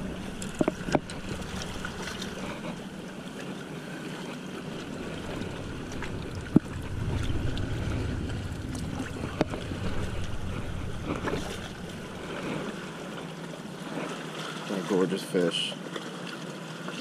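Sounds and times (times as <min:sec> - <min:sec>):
wind buffeting microphone: 0:00.0 - 0:03.7, 0:04.4 - 0:13.4.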